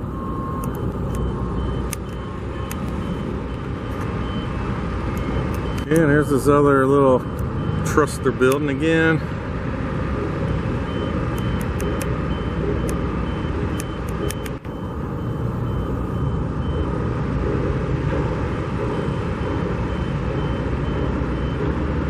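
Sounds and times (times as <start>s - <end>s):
reversing alarm beeping: 0.0s - 9.4s, 10.1s - 22.0s
construction machinery: 0.0s - 22.0s
traffic rumble: 0.0s - 22.0s.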